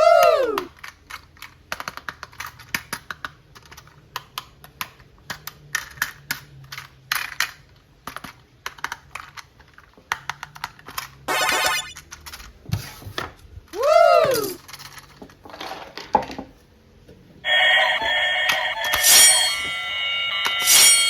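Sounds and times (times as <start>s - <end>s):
small toys clicking and tapping: 0.0s - 12.6s, 13.7s - 16.4s.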